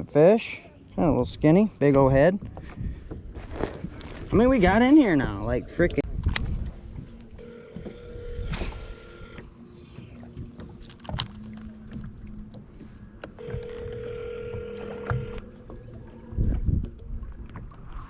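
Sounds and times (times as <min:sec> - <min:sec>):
boat motor whining: 0:07.0 - 0:17.0.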